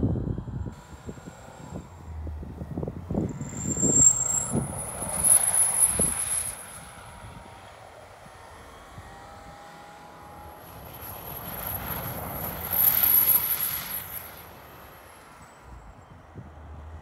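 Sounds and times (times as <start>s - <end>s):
spinning wheels throwing snow: 3.1s - 7.2s, 10.5s - 15.4s.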